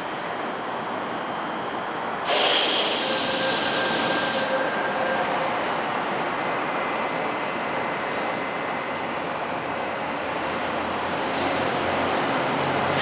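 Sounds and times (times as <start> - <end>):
subway train noise: 0.0 - 13.0
loud hiss: 2.2 - 5.8.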